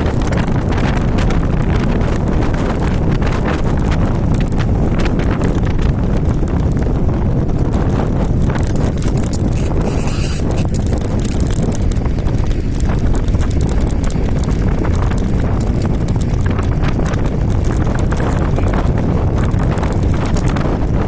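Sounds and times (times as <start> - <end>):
clicks and rattles: 0.0 - 0.8, 7.5 - 20.7
wind buffeting microphone: 0.0 - 21.0.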